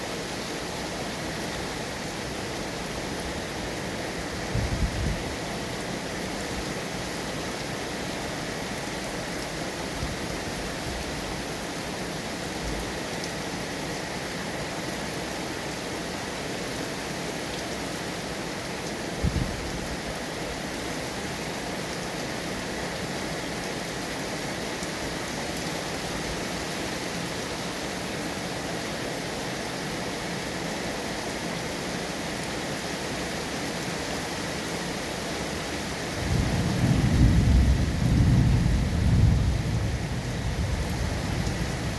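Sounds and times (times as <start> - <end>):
steady rain: 0.0 - 41.9
thunder rumble: 36.2 - 41.9.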